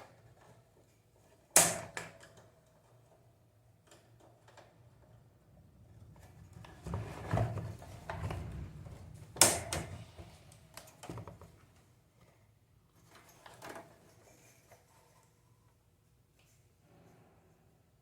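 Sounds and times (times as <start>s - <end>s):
fan parts clicking and knocking: 5.9s - 11.8s.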